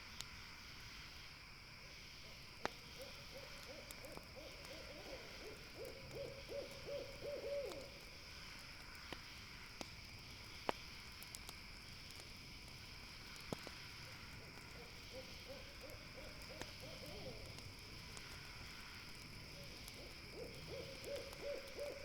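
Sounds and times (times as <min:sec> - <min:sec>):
steady background hiss: 0:00.0 - 0:22.0
campfire popping: 0:01.7 - 0:22.0
owl hooting: 0:03.0 - 0:07.9, 0:14.8 - 0:17.5, 0:20.0 - 0:22.0.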